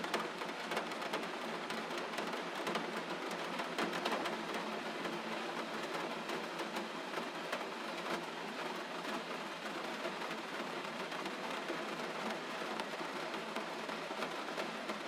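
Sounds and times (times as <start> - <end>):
gentle rain falling: 0.0 - 15.0.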